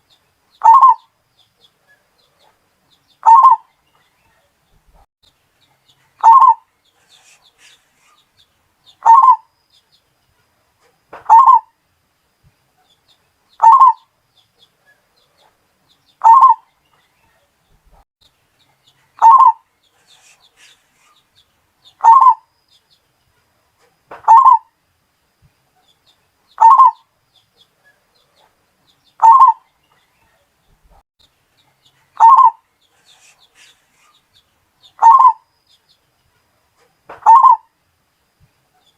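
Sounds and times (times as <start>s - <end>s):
dove cooing: 0.6s - 1.0s, 3.2s - 3.6s, 6.2s - 7.7s, 9.0s - 9.4s, 11.3s - 11.7s, 13.6s - 14.0s, 16.2s - 16.6s, 19.2s - 20.3s, 22.0s - 22.4s, 24.2s - 24.7s, 26.6s - 27.0s, 29.2s - 29.6s, 32.2s - 32.6s, 35.0s - 35.4s, 37.2s - 37.7s.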